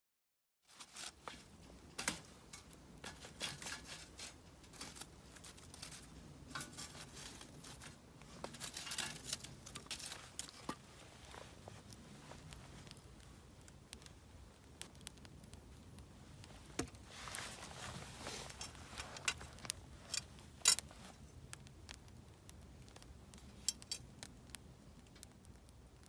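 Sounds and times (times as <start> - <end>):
low rumble of burning fire: 0.6 - 26.0
campfire crackling and popping: 0.7 - 26.0.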